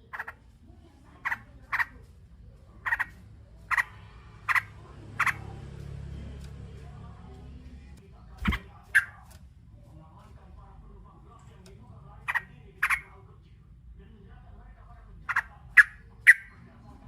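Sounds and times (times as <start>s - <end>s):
bird chicks begging chirps: 2.7s - 5.8s.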